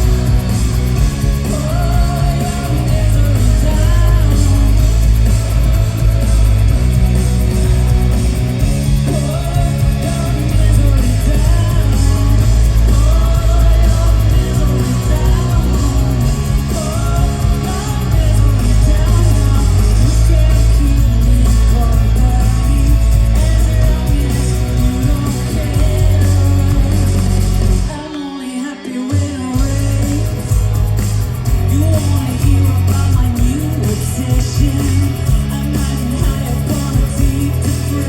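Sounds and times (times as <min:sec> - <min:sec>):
rock band playing live: 0:00.0 - 0:38.0
woman singing: 0:09.1 - 0:30.4.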